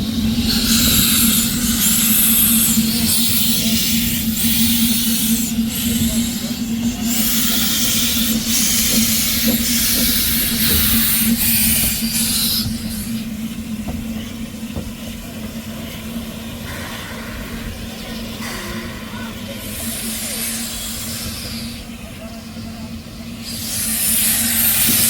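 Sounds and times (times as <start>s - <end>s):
steady low hum: 0.0s - 25.0s
steam locomotive hissing steam: 0.0s - 25.0s.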